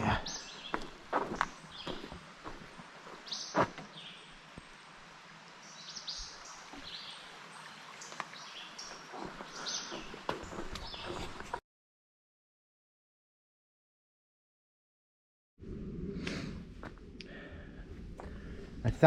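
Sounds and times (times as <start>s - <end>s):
small birds chirping: 0.0s - 4.9s, 5.6s - 11.6s.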